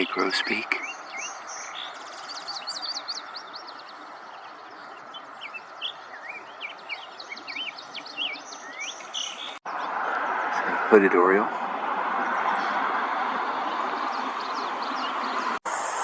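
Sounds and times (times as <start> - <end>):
bird singing whistled notes: 0.8 - 9.6.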